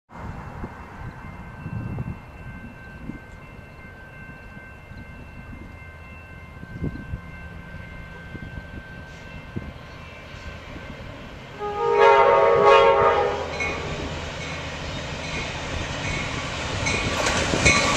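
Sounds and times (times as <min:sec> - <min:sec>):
crossing warning bells ringing: 0:00.2 - 0:17.9.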